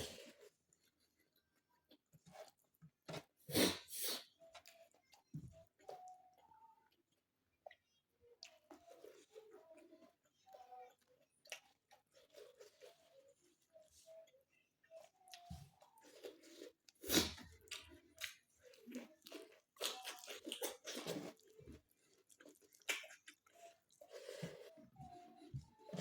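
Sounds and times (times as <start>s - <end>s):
person chewing crunchy food: 15.2s - 24.8s.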